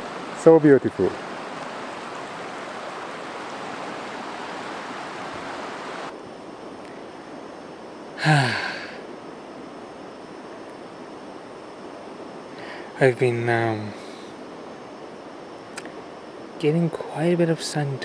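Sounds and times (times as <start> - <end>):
river rushing: 0.0 - 9.7.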